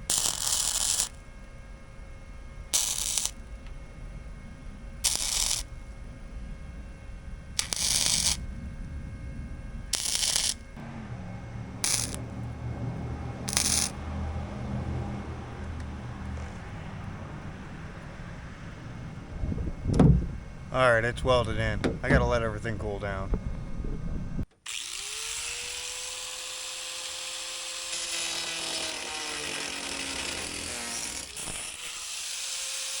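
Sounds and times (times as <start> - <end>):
crackling welding arc bursts: 0.0 - 1.9, 2.6 - 3.7, 4.9 - 6.0, 7.3 - 10.8, 11.8 - 12.3, 13.4 - 14.0, 24.6 - 33.0
low steady hum: 0.0 - 24.5.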